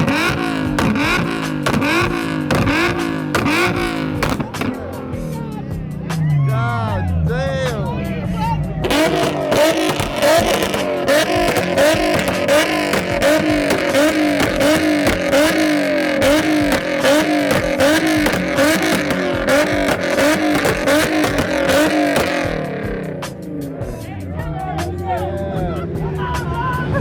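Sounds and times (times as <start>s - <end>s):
exhaust pops and crackles: 0.0s - 5.0s, 8.8s - 23.5s
car engine revving: 0.0s - 24.9s.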